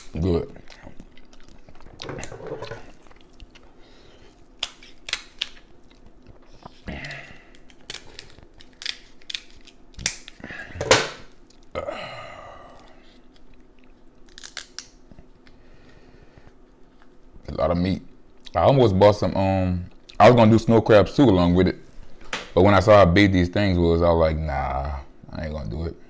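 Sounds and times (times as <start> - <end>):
wet chewing clicks and smacks: 0.6 - 2.2, 2.8 - 3.7.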